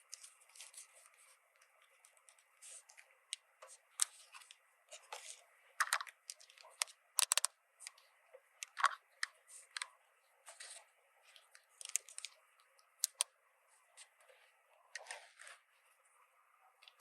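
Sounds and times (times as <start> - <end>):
plastic toy pieces clicking: 5.8 - 8.0, 8.6 - 9.0, 11.8 - 12.3, 13.0 - 13.3.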